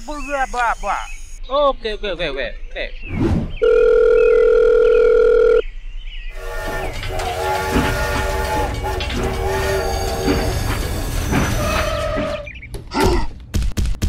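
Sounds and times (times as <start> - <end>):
steady phone-style tone: 3.6 - 5.6
toy train whistle: 6.4 - 12.4.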